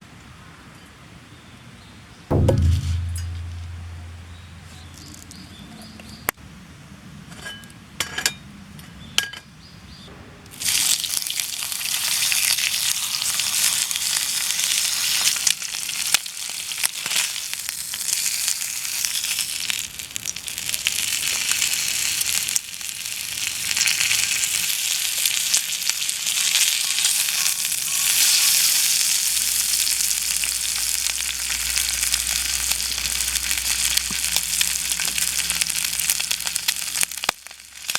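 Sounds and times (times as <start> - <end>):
bacon sizzling in a skillet: 10.6 - 37.9.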